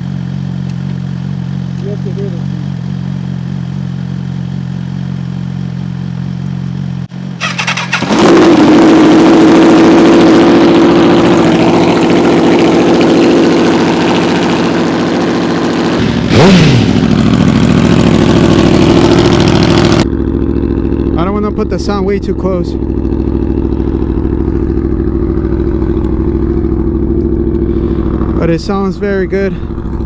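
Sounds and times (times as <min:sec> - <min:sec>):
loud motorcycle exhaust: 0:00.0 - 0:30.0.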